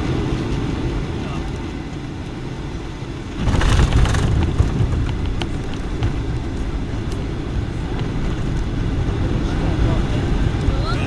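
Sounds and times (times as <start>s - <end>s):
wheels rumbling on runway: 0.0s - 11.0s
cabin clicks and rattles: 3.4s - 6.2s.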